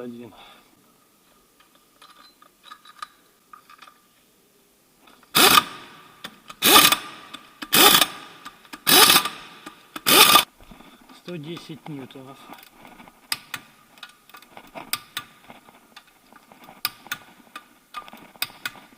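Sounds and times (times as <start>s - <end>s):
loud wrench bursts: 5.3s - 10.5s.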